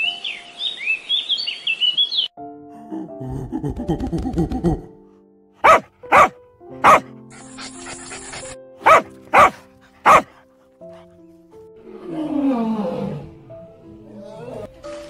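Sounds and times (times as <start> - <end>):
background music: 2.4 - 15.0
puppy barking: 5.6 - 7.1, 8.8 - 10.4.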